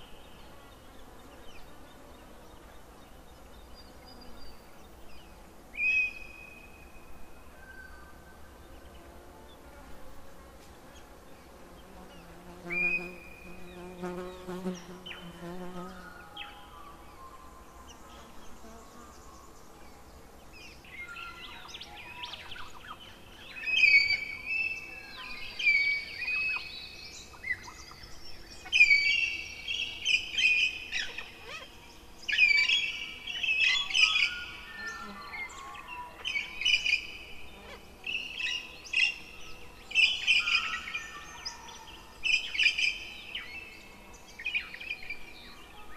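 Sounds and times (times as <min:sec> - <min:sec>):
birds singing and chirping: 0:11.8 - 0:45.9.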